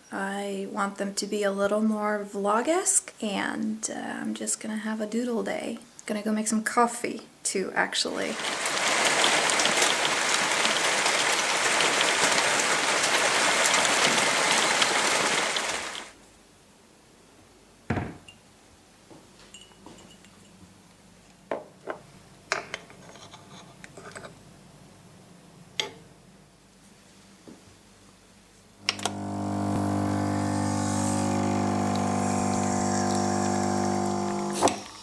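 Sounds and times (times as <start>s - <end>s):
heavy rain pouring: 8.3s - 16.2s
mugs and dishes clinking: 19.5s - 20.6s.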